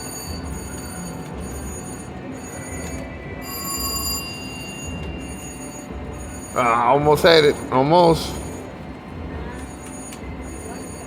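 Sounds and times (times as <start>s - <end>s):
bright chime: 0.0s - 7.8s
slot machine electronic tones: 0.0s - 11.0s.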